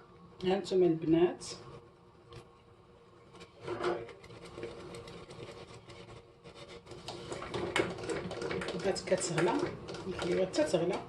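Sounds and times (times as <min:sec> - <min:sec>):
cream bubbling in saucepan: 0:01.4 - 0:11.0
stirring clicks and taps: 0:03.3 - 0:11.0.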